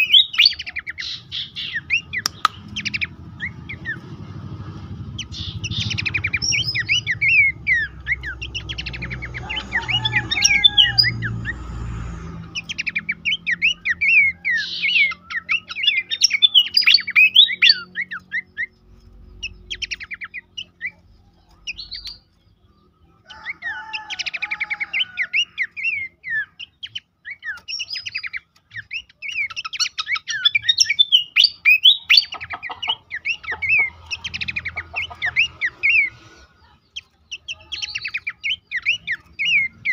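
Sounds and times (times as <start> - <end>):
bird calling chirps and whistles: 0.0 - 4.0, 5.2 - 11.2, 12.6 - 18.8, 23.3 - 36.2, 36.9 - 39.9
low rumble: 1.7 - 13.2.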